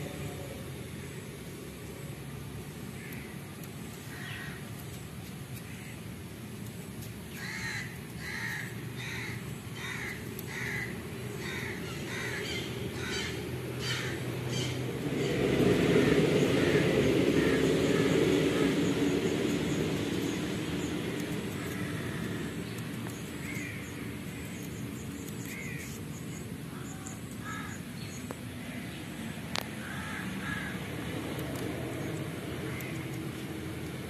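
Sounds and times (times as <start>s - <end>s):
steady low rumble: 0.0s - 34.0s
bird calling: 7.3s - 15.4s, 16.0s - 28.3s.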